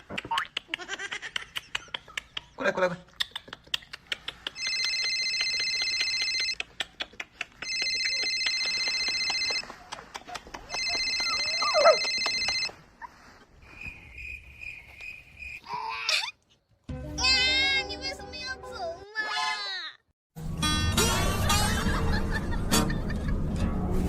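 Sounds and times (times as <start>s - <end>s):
telephone ringer trilling: 4.6s - 6.6s.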